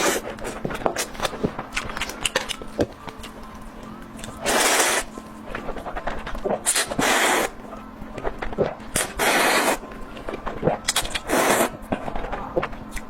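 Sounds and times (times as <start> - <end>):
chewing and lip smacking: 0.4 - 7.0, 10.2 - 13.0
hissing slurps: 4.2 - 5.2, 5.8 - 7.6, 8.6 - 9.9, 10.6 - 11.8.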